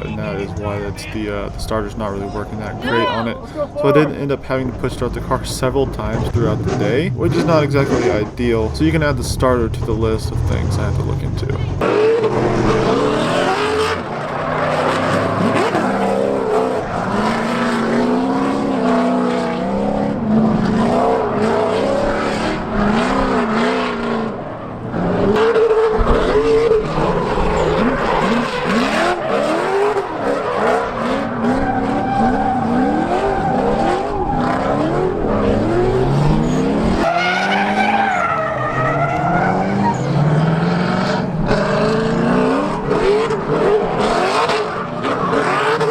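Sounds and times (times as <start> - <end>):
car engine revving: 0.0 - 45.9
tyre squeal: 25.3 - 41.1.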